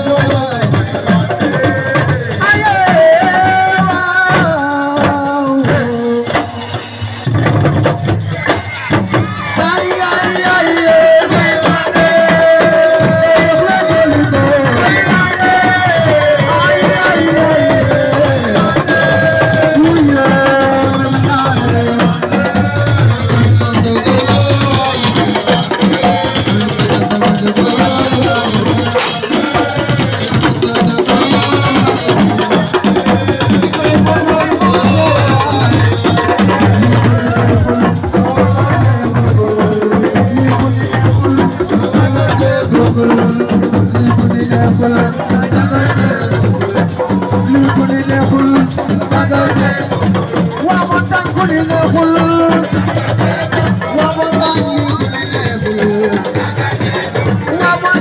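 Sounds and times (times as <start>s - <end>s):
dense drumming and percussion: 0.0s - 58.0s
shakers: 0.0s - 58.0s
repeating bass line: 33.3s - 46.6s.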